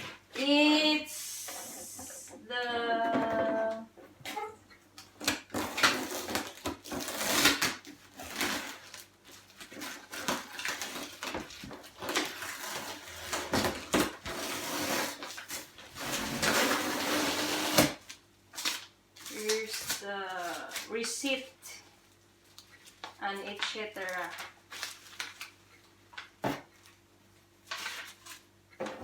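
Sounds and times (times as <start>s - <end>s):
cardboard rustling and scraping: 5.5s - 21.4s, 27.6s - 29.0s.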